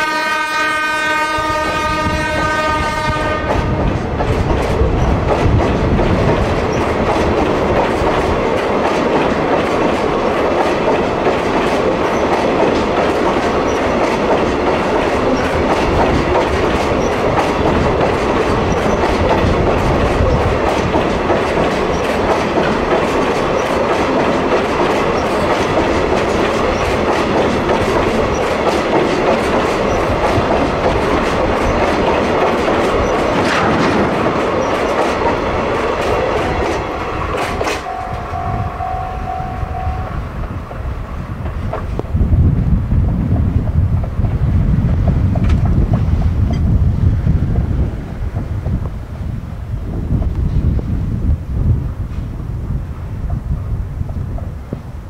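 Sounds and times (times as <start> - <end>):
freight train rumble: 0.0 - 55.0
wheels clicking over rail joints: 2.1 - 38.9.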